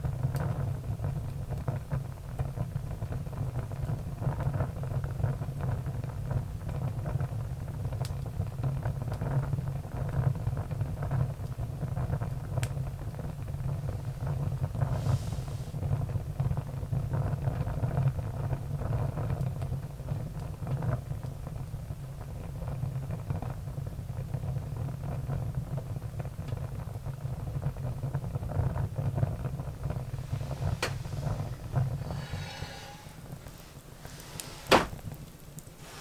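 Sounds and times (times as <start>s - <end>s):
wood fire crackling: 11.4s - 15.9s, 29.6s - 36.0s
fire pops: 29.9s - 36.0s.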